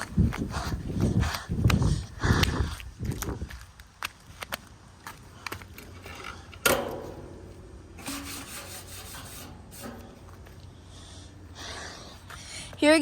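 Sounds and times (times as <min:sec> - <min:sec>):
rustling and scraping handling noise: 0:05.4 - 0:10.8.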